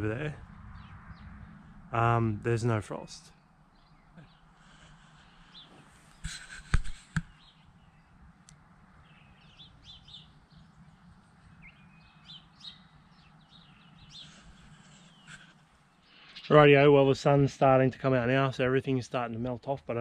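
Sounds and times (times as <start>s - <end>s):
birds chirping: 0.0s - 20.0s
sharp click: 6.2s - 7.4s
low steady hum: 7.0s - 17.3s.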